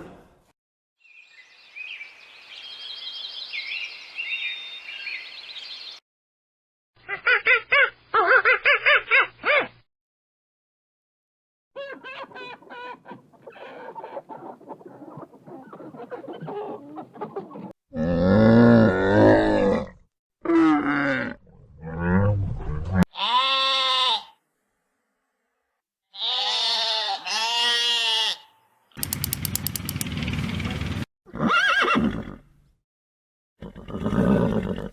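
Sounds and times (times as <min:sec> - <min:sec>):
animal calls: 0:11.8 - 0:17.7.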